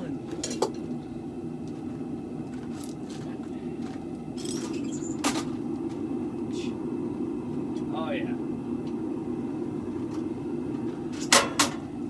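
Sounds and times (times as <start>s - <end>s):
low mechanical hum: 0.0s - 12.0s
sharp metallic clank: 11.2s - 11.8s.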